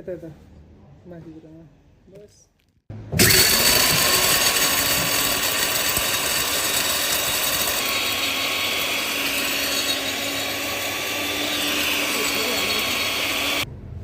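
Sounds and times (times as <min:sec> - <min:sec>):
milling machine grinding: 0:03.2 - 0:13.6.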